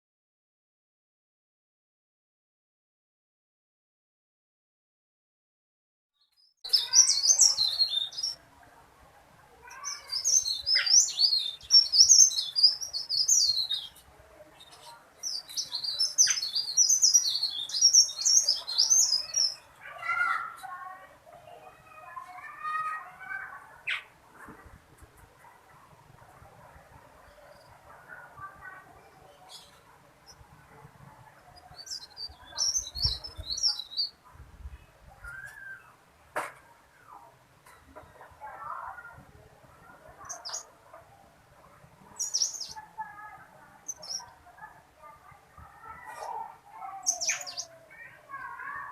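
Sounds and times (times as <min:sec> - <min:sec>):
bird chirping: 0:06.2 - 0:08.4, 0:09.6 - 0:20.6, 0:25.4 - 0:36.0, 0:39.8 - 0:41.0, 0:42.0 - 0:42.8, 0:43.8 - 0:44.6, 0:45.9 - 0:48.9
songbird high-pitched warbling: 0:06.6 - 0:08.4, 0:09.6 - 0:20.4, 0:31.6 - 0:34.2, 0:40.2 - 0:40.7, 0:42.2 - 0:42.8, 0:47.0 - 0:47.8.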